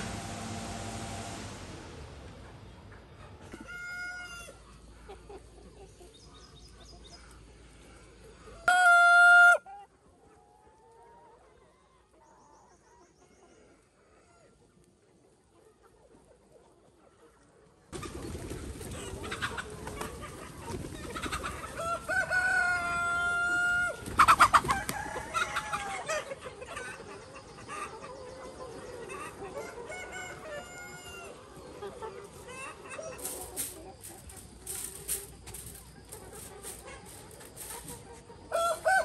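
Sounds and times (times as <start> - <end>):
chicken clucking: 2.6 - 39.0
chicken long call: 8.5 - 9.8.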